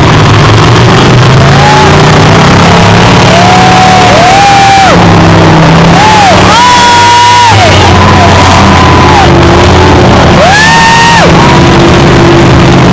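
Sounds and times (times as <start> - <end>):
truck engine revving: 0.0 - 12.9
steady low drone: 7.6 - 12.9.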